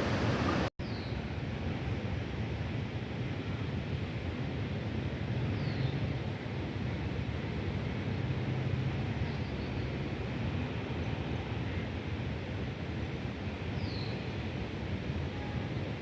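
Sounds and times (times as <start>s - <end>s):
vehicle engine running: 0.0s - 0.7s.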